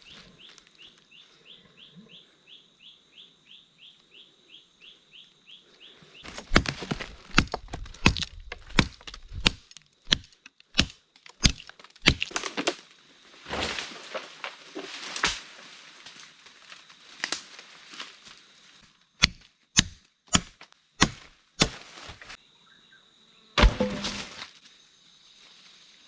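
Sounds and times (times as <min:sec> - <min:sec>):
axe chopping wood: 0:06.3 - 0:12.6, 0:19.2 - 0:22.3, 0:23.6 - 0:24.4
rustling: 0:21.6 - 0:22.4.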